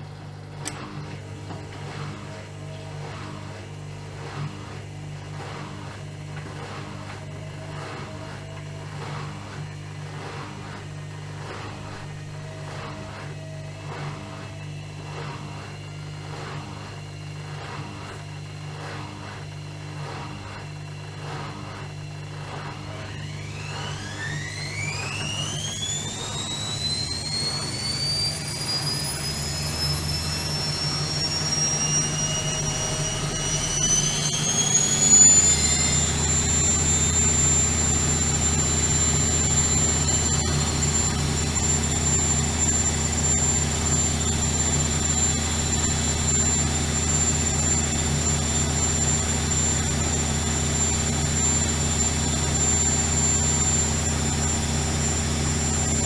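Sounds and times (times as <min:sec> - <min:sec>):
washing machine motor whine: 0:00.0 - 0:56.0
low hum: 0:28.8 - 0:56.0.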